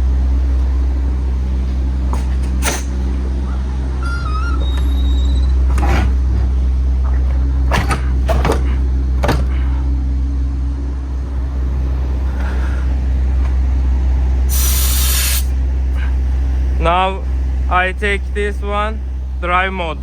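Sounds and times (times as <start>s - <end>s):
diesel truck engine idling: 0.0s - 20.0s
air hiss burst: 14.5s - 15.5s.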